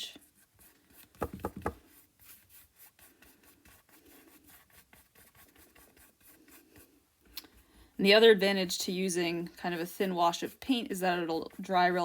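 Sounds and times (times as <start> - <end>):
scratchy brush strokes on canvas: 0.0 - 12.0.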